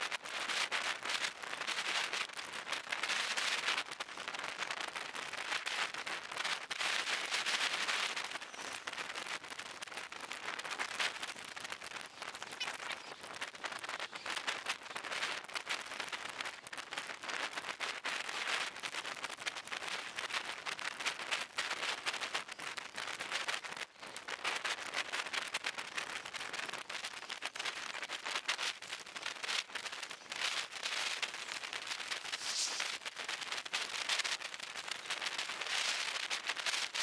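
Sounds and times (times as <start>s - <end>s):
heavy rain pattering: 22.4s - 37.0s.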